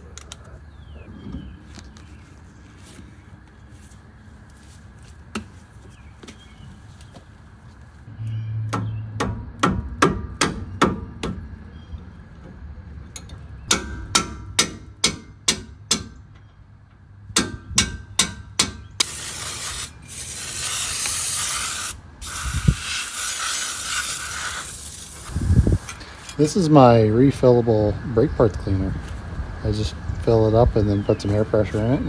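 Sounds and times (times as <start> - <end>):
aerosol spray hissing: 19.0 - 25.8.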